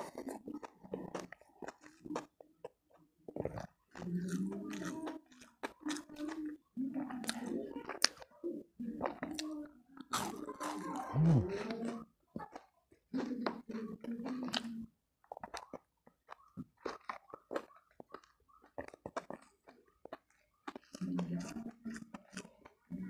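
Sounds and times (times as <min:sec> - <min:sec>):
person chewing crunchy food: 0:00.0 - 0:23.0
person humming low: 0:11.2 - 0:11.6.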